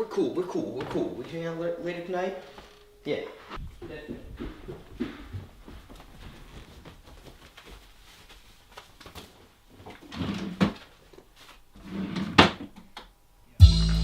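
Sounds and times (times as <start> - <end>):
rustling handling noise: 2.3 - 11.8.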